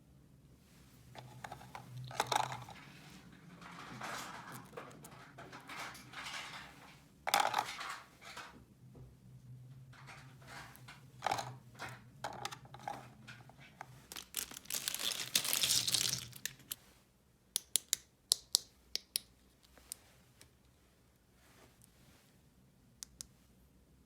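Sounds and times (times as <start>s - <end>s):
plastic crinkling: 13.9s - 16.8s
plastic toy pieces clicking: 14.1s - 16.8s.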